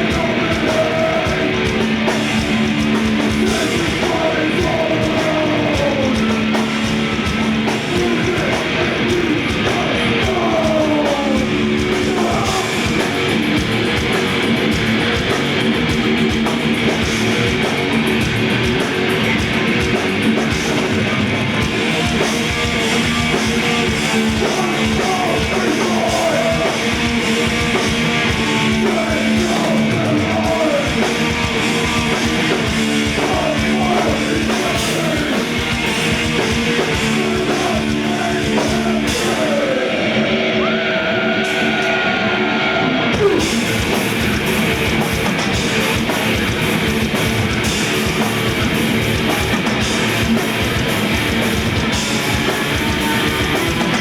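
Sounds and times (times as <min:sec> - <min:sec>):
shouted vocals: 0:00.0 - 0:13.7, 0:20.8 - 0:44.2
distorted electric guitars: 0:00.0 - 0:54.0
drums: 0:00.0 - 0:54.0.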